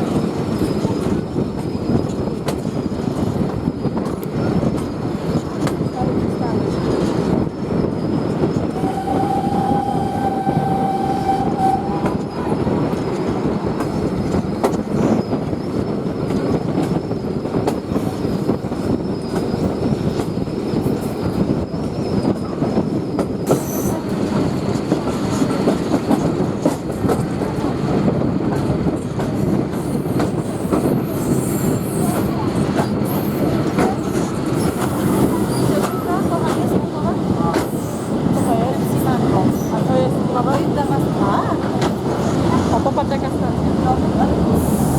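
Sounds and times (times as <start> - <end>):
train wheels clickety-clack: 0.0 - 10.9, 11.5 - 44.9
steam train whistle: 8.7 - 12.3.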